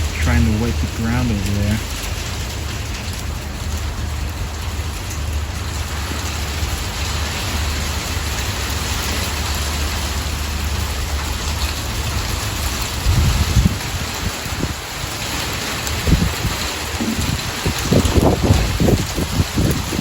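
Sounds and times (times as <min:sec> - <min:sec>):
sleet and rain pattering: 0:00.0 - 0:20.0.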